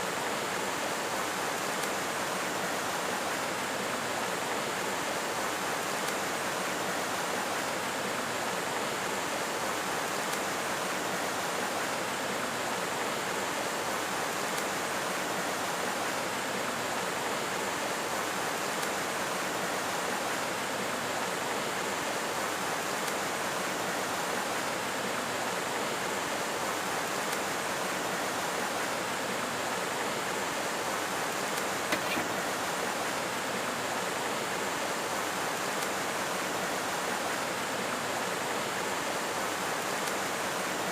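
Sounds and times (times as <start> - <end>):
flowing water rushing: 0.0 - 40.9
brief click: 31.6 - 32.6.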